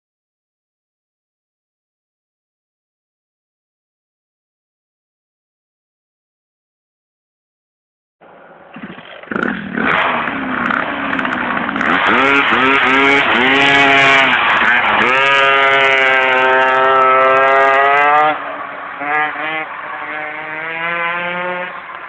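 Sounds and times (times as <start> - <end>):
pocket bike engine revving: 8.7 - 22.0.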